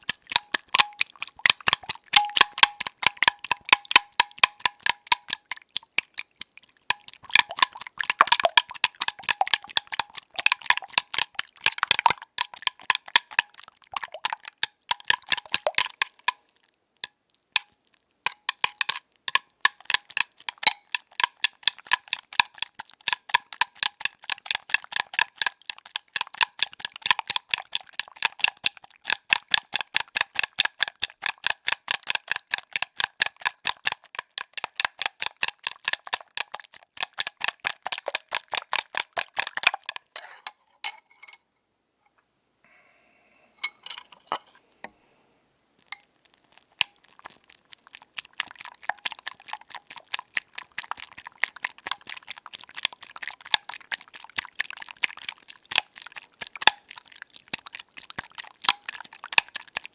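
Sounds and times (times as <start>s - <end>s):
eggs beaten in a bowl: 0.0s - 40.6s, 45.8s - 59.9s
scattered taps and clinks: 0.8s - 5.4s.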